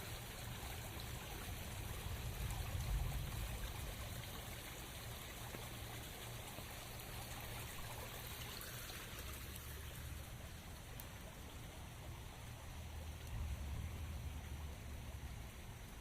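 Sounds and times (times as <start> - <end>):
steady rain: 0.0 - 16.0
water trickling and running: 0.0 - 16.0.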